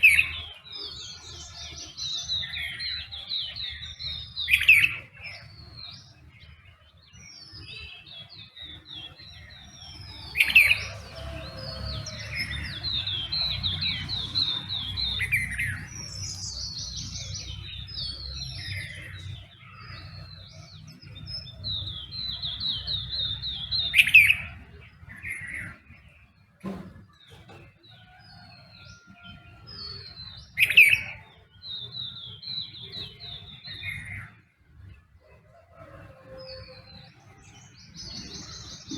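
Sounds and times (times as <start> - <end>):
loud sharp bird calls: 0.0 - 38.9
songbirds singing: 0.0 - 38.9.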